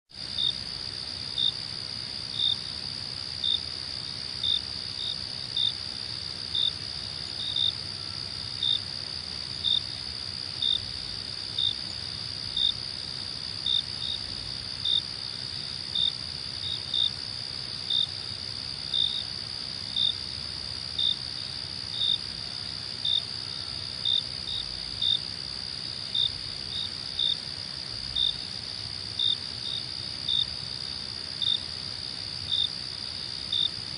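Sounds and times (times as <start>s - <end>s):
crickets trilling: 0.2s - 33.9s.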